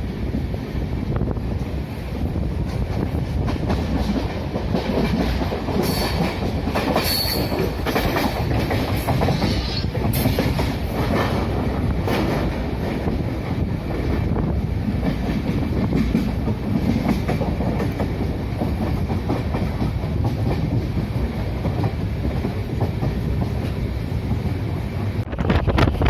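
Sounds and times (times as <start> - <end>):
train rumbling on rails: 0.0 - 26.0.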